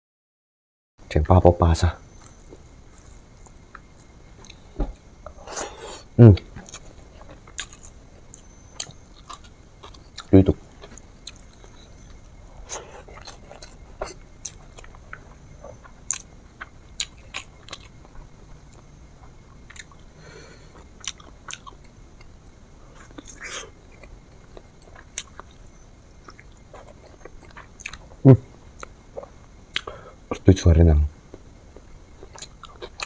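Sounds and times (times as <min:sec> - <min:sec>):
person chewing food: 0:02.2 - 0:30.4, 0:31.3 - 0:33.0.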